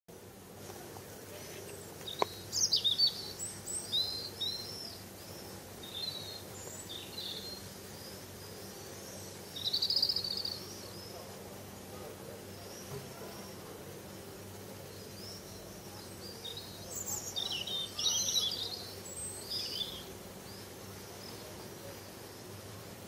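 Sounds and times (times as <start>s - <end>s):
songbirds chirping: 0.1s - 23.0s
steady low hum: 0.1s - 23.0s
bird trill: 2.1s - 11.1s, 15.2s - 20.1s.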